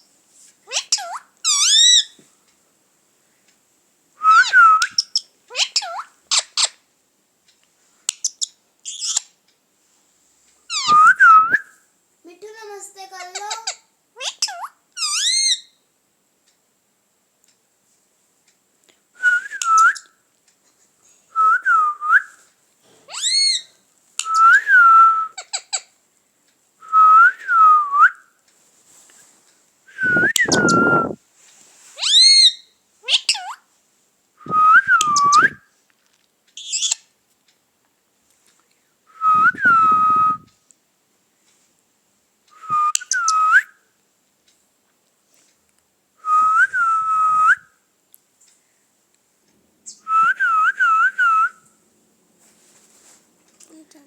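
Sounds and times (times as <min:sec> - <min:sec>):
parrot whistling: 0:00.7 - 0:02.1, 0:04.2 - 0:06.4, 0:10.7 - 0:11.7, 0:14.2 - 0:15.7, 0:19.2 - 0:20.1, 0:23.1 - 0:25.4, 0:30.0 - 0:31.2, 0:32.0 - 0:33.6, 0:34.5 - 0:35.6, 0:39.2 - 0:40.5, 0:42.6 - 0:43.7, 0:49.9 - 0:51.6
parrot chirps: 0:00.7 - 0:02.2, 0:04.3 - 0:06.8, 0:08.1 - 0:09.4, 0:10.7 - 0:11.5, 0:13.2 - 0:15.8, 0:23.1 - 0:25.9, 0:32.0 - 0:33.6, 0:36.6 - 0:37.1, 0:42.7 - 0:43.7.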